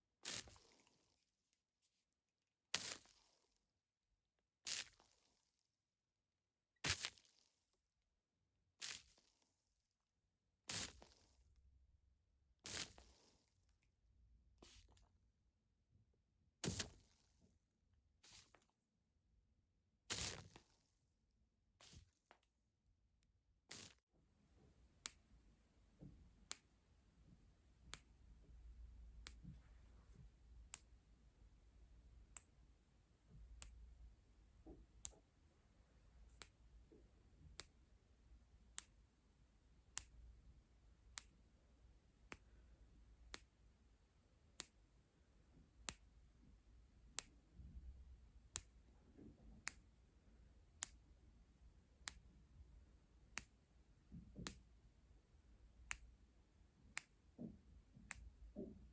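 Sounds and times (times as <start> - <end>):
sharp crisp clicks: 55.8 - 56.1.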